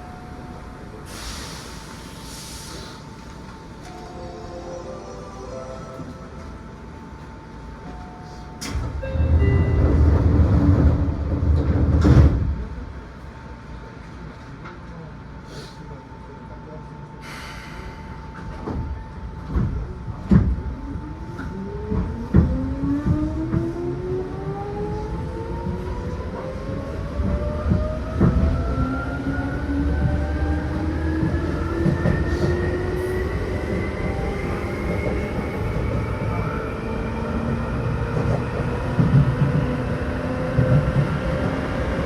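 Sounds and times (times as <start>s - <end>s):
wheels rumbling on rails: 6.0s - 13.0s, 18.4s - 42.0s.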